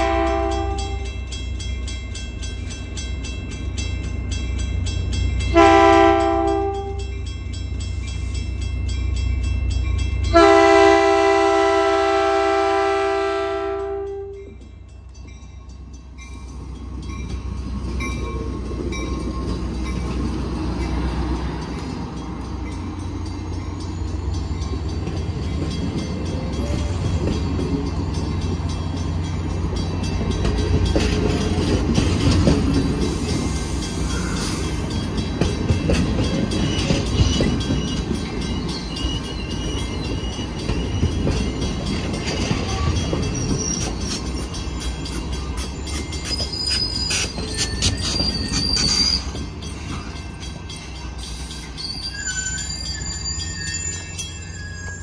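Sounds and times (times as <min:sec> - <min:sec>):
train wheels rumbling on rail: 0:00.0 - 0:55.0
high wheel squeals: 0:32.7 - 0:35.1, 0:36.2 - 0:55.0.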